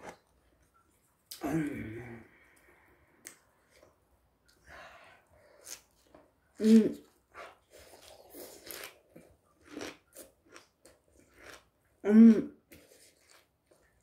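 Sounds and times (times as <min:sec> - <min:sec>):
person chewing and slurping: 0:05.5 - 0:11.8.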